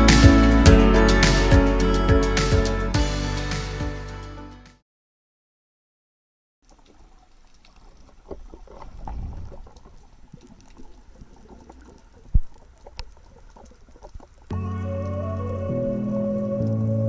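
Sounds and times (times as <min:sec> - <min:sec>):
music: 0:00.0 - 0:04.8, 0:14.5 - 0:17.0
faint crackling and clicks: 0:06.6 - 0:15.2.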